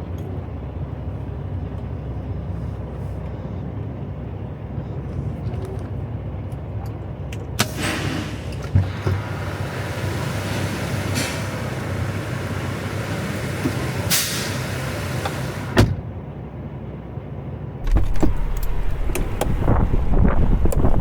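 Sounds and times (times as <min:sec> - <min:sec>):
diesel truck engine rumbling: 0:00.0 - 0:21.0
short air hiss: 0:07.6 - 0:08.6, 0:09.2 - 0:15.8.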